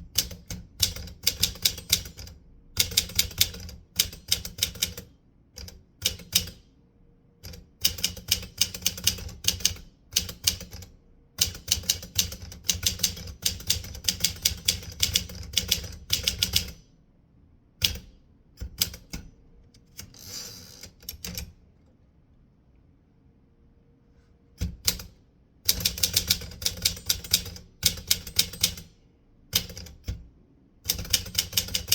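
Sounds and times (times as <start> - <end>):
typewriter keys striking: 0.1 - 5.0, 11.4 - 16.8, 25.7 - 28.8, 29.6 - 30.0, 30.9 - 31.9.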